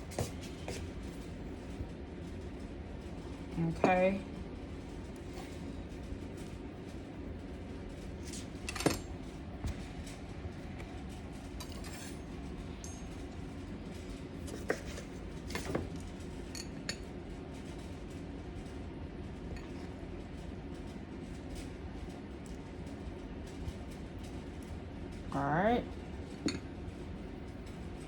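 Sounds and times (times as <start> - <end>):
steady low hum: 0.0 - 28.0
utensils and dishes clinking: 11.4 - 13.3, 14.4 - 17.1, 26.3 - 26.7.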